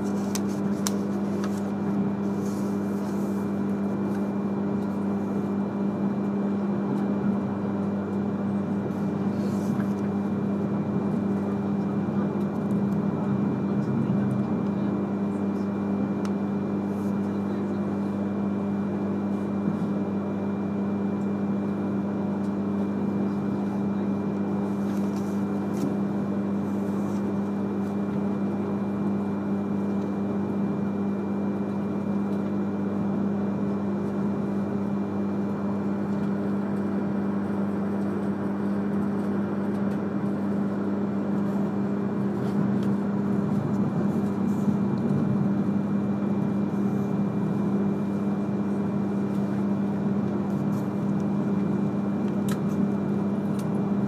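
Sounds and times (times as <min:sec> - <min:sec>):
train interior drone: 0:06.9 - 0:18.2, 0:37.4 - 0:53.9.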